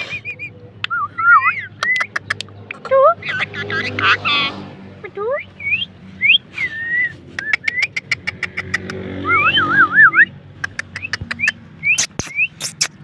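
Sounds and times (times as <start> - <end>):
parrot chirping and clicking: 0.8 - 3.8, 7.4 - 9.0, 10.6 - 13.0.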